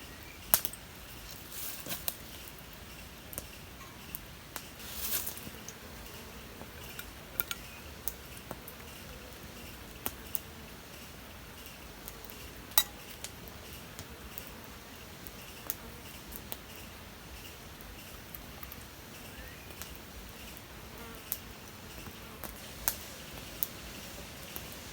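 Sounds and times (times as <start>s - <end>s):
faint insect hum: 0.0s - 24.9s
sharp clicks and clinks: 6.8s - 7.7s, 12.8s - 13.2s.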